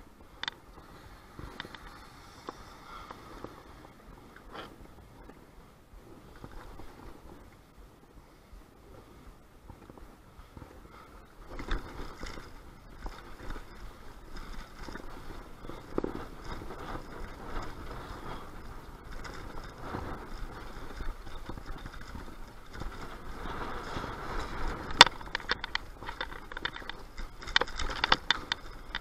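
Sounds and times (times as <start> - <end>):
street noise: 0.0 - 6.1
wind buffeting microphone: 0.0 - 29.0
small knocks and rattles: 11.5 - 29.0.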